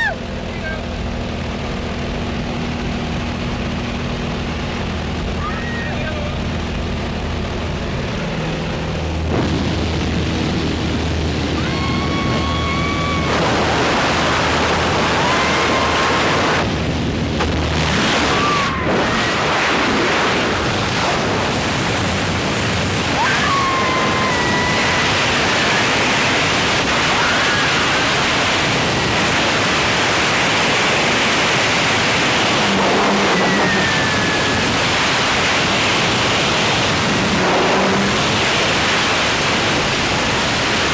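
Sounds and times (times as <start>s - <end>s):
wind rushing over microphone: 0.0s - 40.9s
high whistling glides: 31.0s - 39.1s.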